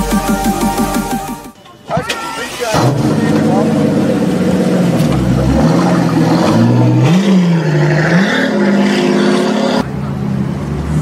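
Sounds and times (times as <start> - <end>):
car engine revving: 2.5 - 11.0.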